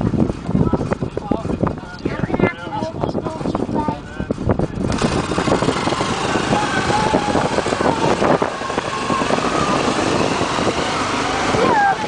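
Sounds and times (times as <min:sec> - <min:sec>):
wind buffeting microphone: 0:00.0 - 0:12.0
distant voices calling: 0:04.9 - 0:12.0.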